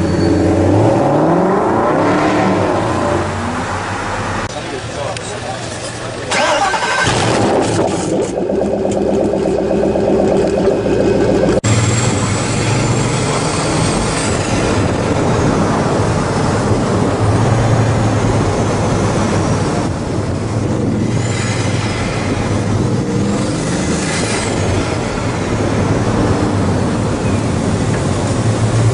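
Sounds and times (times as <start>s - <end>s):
vehicle engines humming: 7.0s - 23.9s.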